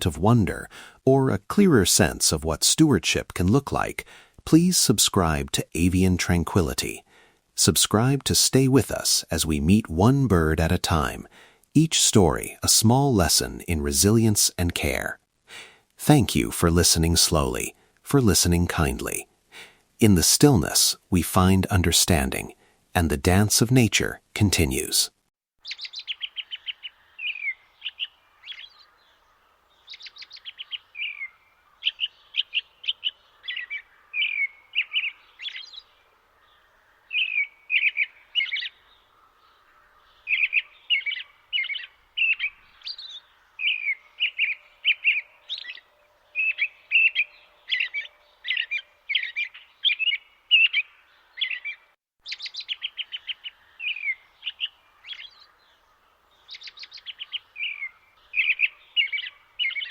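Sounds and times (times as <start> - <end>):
faint steady background hiss: 0.0 - 25.3
small birds chirping: 25.6 - 59.9.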